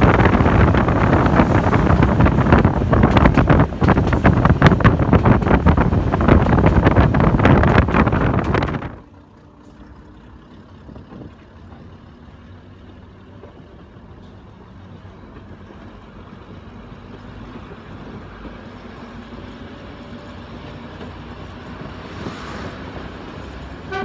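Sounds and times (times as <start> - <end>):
wind buffeting microphone: 0.0 - 9.3
train diesel engine running: 0.0 - 24.0.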